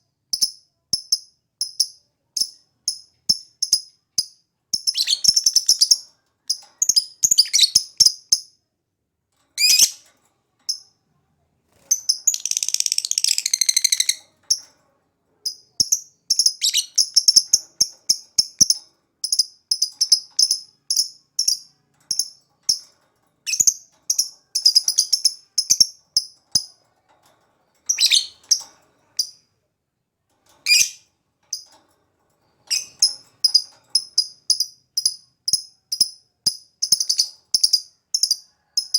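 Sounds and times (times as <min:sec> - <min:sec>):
rattling bird trill: 0:00.4 - 0:08.6, 0:09.4 - 0:11.0, 0:11.8 - 0:14.8, 0:15.4 - 0:29.5, 0:30.4 - 0:38.9
lovebird chirping: 0:02.4 - 0:08.5, 0:09.6 - 0:10.0, 0:11.8 - 0:14.2, 0:15.5 - 0:26.7, 0:27.9 - 0:28.6, 0:30.6 - 0:31.6, 0:32.7 - 0:38.4.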